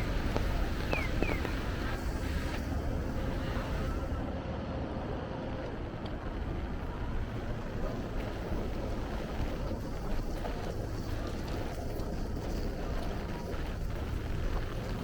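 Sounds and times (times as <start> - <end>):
rain pattering on umbrella: 0.0 - 2.7, 7.4 - 15.0
city street hum: 0.0 - 15.0.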